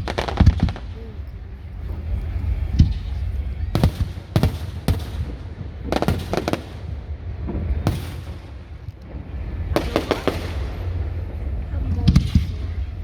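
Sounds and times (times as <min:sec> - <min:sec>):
fireworks bangs: 0:00.0 - 0:01.3, 0:01.9 - 0:13.0
steady low rumble: 0:00.0 - 0:13.0.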